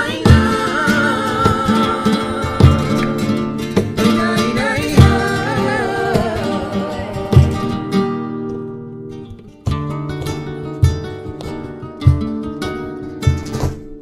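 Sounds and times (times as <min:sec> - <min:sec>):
person singing wordless notes: 0:00.0 - 0:03.4, 0:04.0 - 0:07.9
strummed flamenco guitar: 0:00.0 - 0:14.0.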